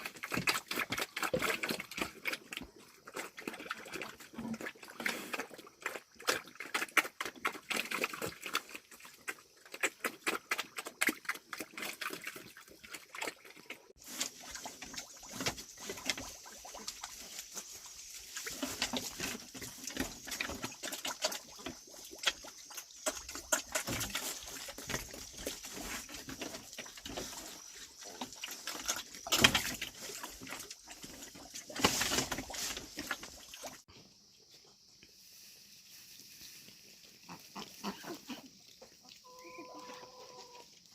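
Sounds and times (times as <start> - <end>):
pigs chewing and slurping: 0.0 - 34.5, 36.4 - 40.9
pig calls: 37.2 - 38.5, 39.2 - 40.7.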